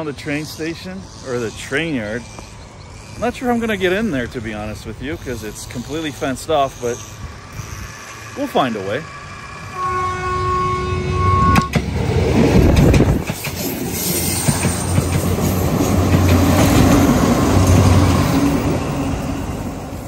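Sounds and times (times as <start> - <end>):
passing train rumble and clatter: 0.0 - 20.0
train horn: 9.7 - 11.8.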